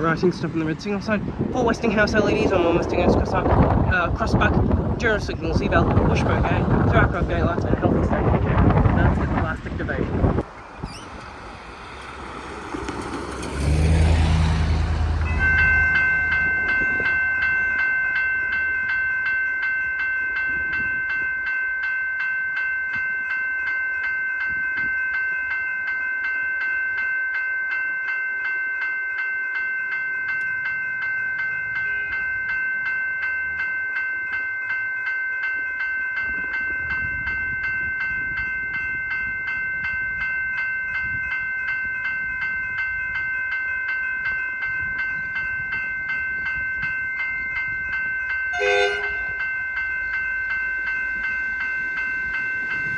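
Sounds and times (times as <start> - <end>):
loud rush passing close: 10.6 - 17.4
level crossing bell ringing: 15.0 - 52.9.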